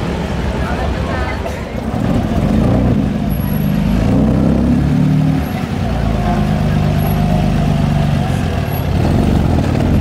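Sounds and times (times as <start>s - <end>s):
vintage car engine running: 5.5s - 10.0s.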